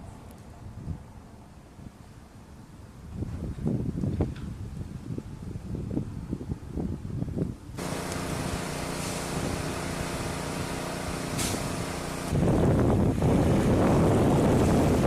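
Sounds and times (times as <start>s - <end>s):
wind buffeting microphone: 0.0s - 2.1s, 2.7s - 15.0s
engine running steadily: 7.8s - 15.0s.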